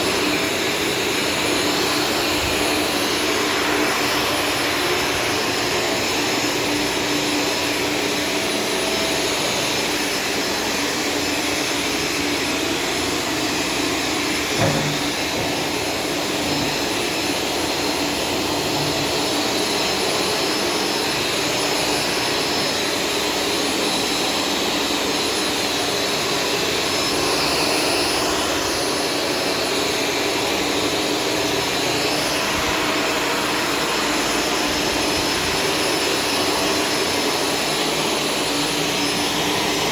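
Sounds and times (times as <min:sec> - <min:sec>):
vacuum cleaner running: 0:00.0 - 0:39.9
brief knock: 0:14.6 - 0:15.6.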